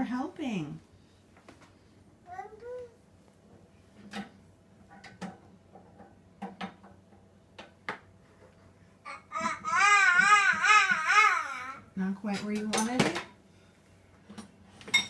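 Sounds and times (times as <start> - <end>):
toddler vocalizing: 2.3 - 3.0, 9.0 - 11.9.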